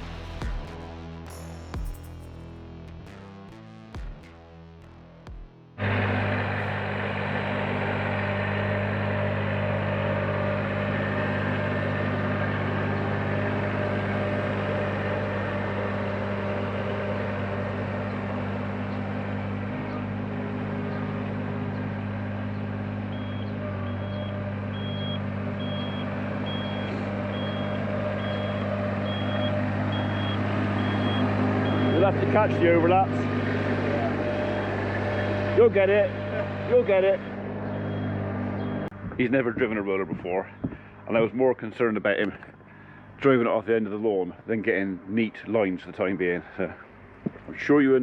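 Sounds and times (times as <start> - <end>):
roller engine running: 0.0 - 44.0
reversing alarm beeps: 23.1 - 32.2, 34.2 - 35.6, 37.2 - 38.9.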